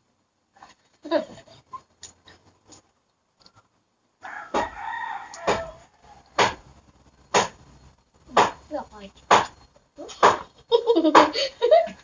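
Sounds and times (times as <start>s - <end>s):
rooster crowing: 4.2s - 6.6s
sharp knocks: 5.5s - 5.7s, 6.4s - 6.6s, 7.3s - 7.6s, 8.3s - 8.6s, 9.2s - 9.6s, 10.2s - 10.5s.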